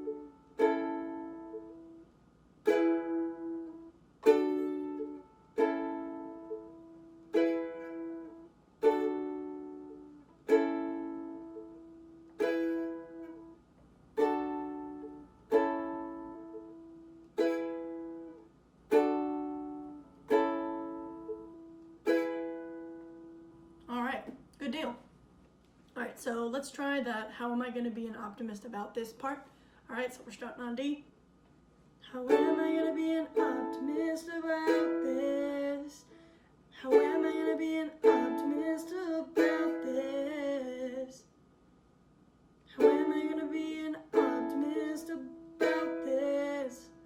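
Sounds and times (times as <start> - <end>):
ukulele chords strummed: 0.0 - 2.0, 2.6 - 13.6, 14.2 - 23.5, 32.2 - 36.0, 36.8 - 41.0, 42.7 - 47.0.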